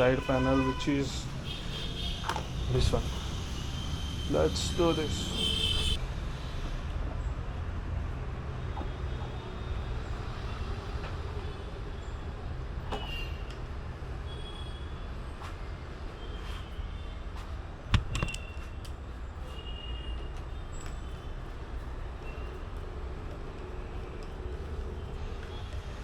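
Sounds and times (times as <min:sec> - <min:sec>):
sharp knock: 0:17.9 - 0:18.4.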